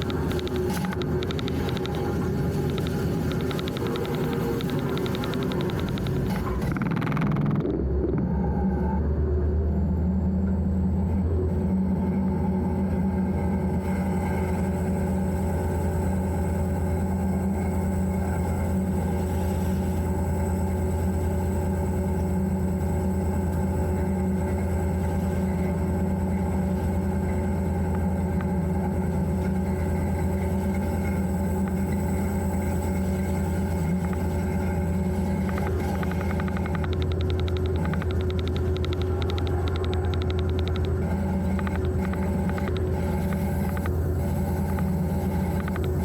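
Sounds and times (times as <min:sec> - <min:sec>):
locomotive diesel engine drone: 0:00.0 - 0:46.0.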